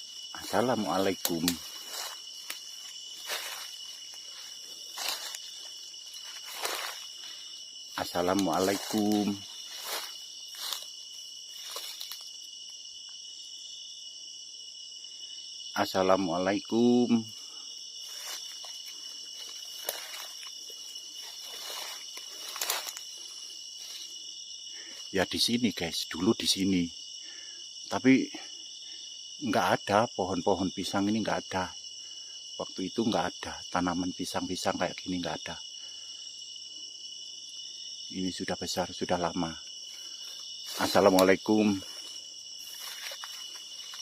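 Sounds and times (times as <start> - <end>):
footsteps crackling on ground: 0.0 - 12.5, 18.0 - 24.2, 39.8 - 44.0
rustling through dry leaves: 0.0 - 12.5, 18.0 - 24.2, 39.9 - 44.0
crickets and insects chirring: 0.0 - 44.0.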